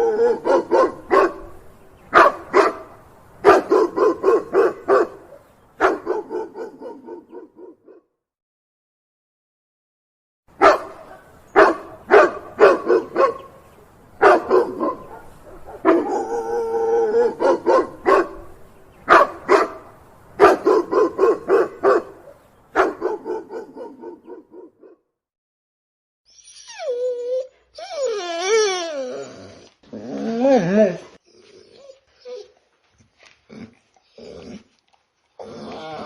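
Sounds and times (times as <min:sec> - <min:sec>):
dog barking deeply: 0:00.0 - 0:08.0, 0:10.6 - 0:13.6, 0:14.2 - 0:25.0.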